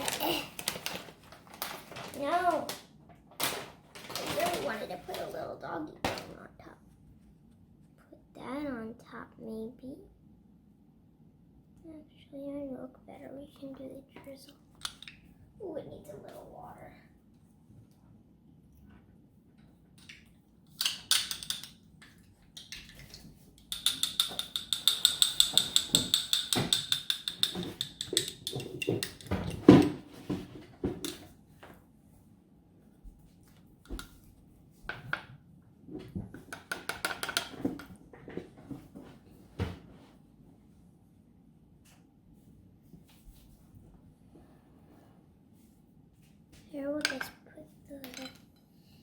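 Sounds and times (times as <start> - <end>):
spoon clinking against bowl: 23.6 - 29.3
spoon knocking bowl: 23.6 - 29.3.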